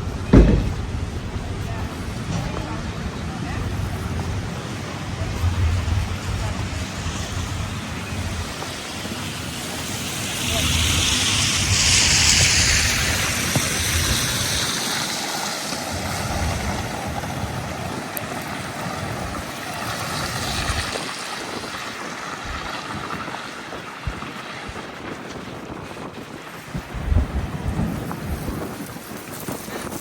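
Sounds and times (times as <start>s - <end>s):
low buffeting: 0.0s - 14.8s, 24.8s - 30.0s
city street rushing hiss: 0.0s - 30.0s.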